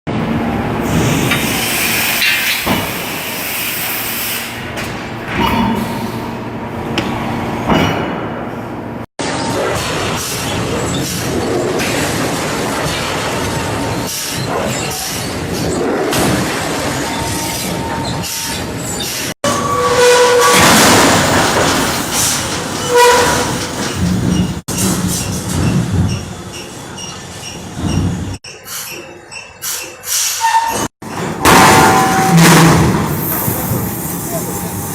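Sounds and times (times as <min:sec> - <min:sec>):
machinery metallic rumble and clatter: 0:04.5 - 0:14.2, 0:20.0 - 0:28.4, 0:31.0 - 0:34.9
metal on metal squealing: 0:17.5 - 0:20.8, 0:22.8 - 0:23.7, 0:28.6 - 0:32.8.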